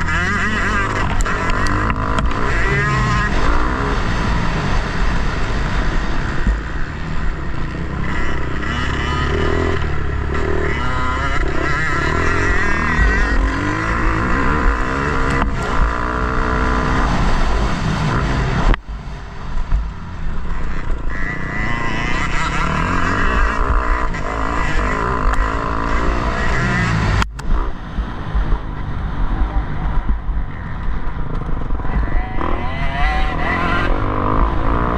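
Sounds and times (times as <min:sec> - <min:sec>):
motorcycle engine revving: 0:00.0 - 0:34.9
wind rumbling: 0:00.0 - 0:34.9.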